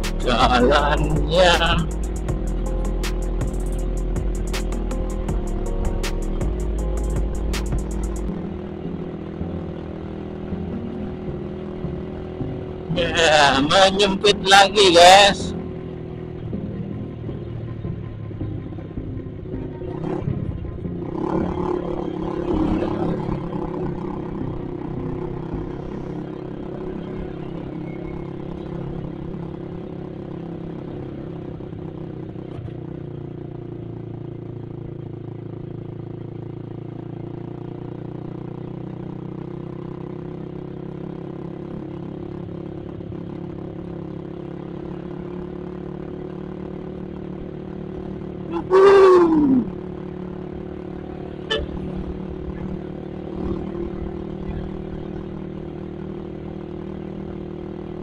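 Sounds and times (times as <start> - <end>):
motorcycle engine cruising: 0.0 - 58.0
vehicle horn blast: 51.4 - 52.1.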